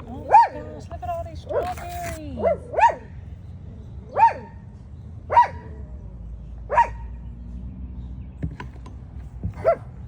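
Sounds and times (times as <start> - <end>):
dog barking: 2.4 - 3.1, 4.2 - 4.5, 5.3 - 5.7, 6.7 - 7.1, 9.6 - 9.9.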